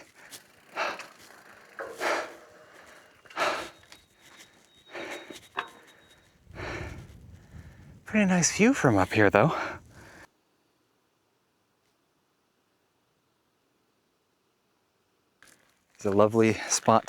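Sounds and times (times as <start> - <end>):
man breathing hard: 0.0 - 8.1, 9.5 - 10.2.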